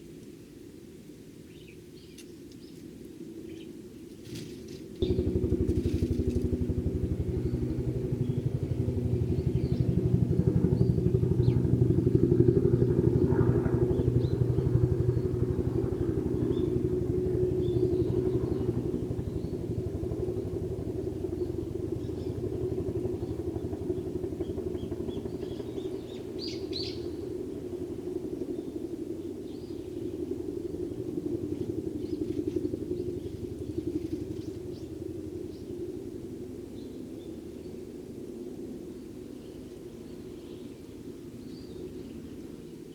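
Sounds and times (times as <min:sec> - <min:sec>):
faint sparrow chirps: 0:00.9 - 0:06.5, 0:07.2 - 0:11.8, 0:12.8 - 0:20.6, 0:21.2 - 0:27.6, 0:28.5 - 0:36.0, 0:39.2 - 0:42.9
motor engine pulsing: 0:05.0 - 0:28.5.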